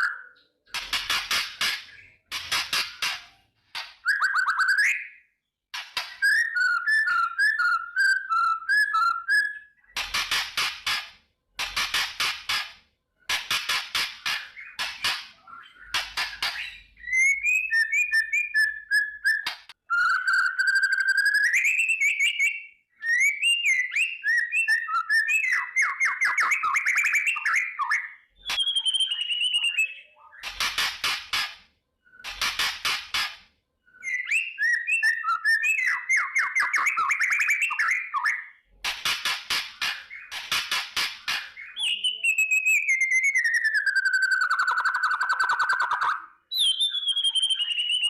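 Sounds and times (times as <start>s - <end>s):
bird whistled phrases and trills: 0.0s - 0.4s, 4.0s - 5.4s, 6.0s - 10.0s, 14.2s - 30.7s, 33.9s - 38.6s, 41.3s - 48.0s.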